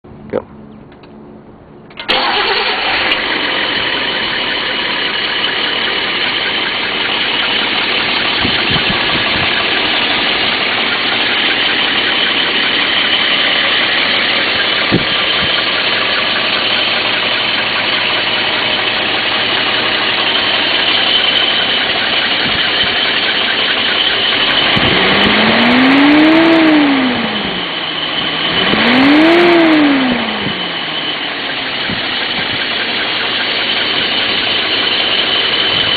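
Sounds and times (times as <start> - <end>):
car engine idling and revving: 0.1 - 35.9.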